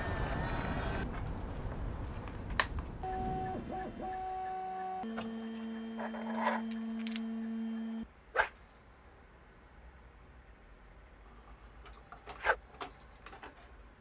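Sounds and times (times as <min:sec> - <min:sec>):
stepper motors whining: 0:00.0 - 0:01.1, 0:03.0 - 0:08.0.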